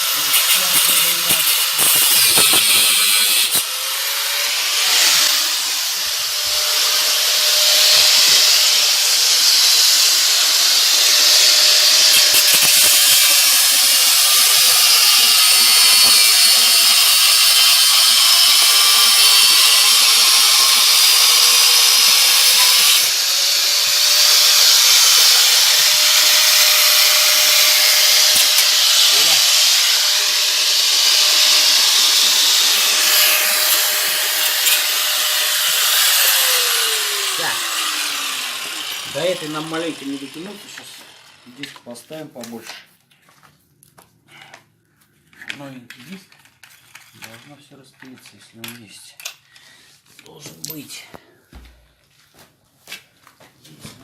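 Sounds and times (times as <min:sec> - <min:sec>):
angle grinder cutting steel: 0:00.0 - 0:42.0.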